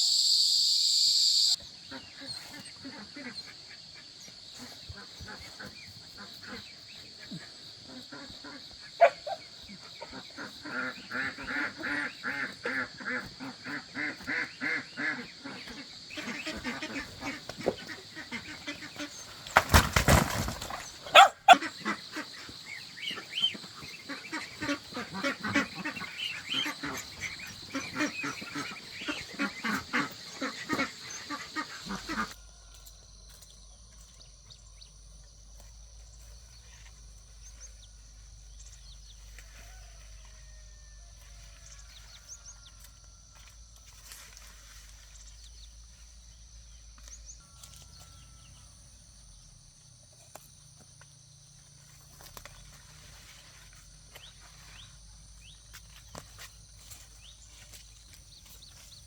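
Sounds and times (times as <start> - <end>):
waterfowl calling: 7.3 - 32.4.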